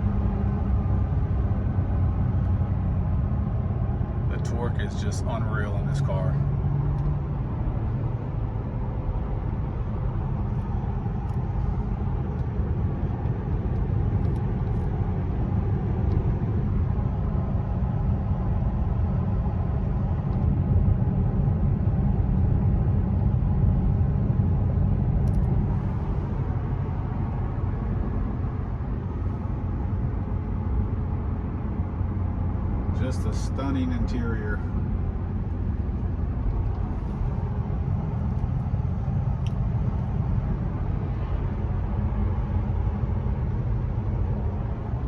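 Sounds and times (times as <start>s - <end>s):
car engine and road noise: 0.0s - 45.0s.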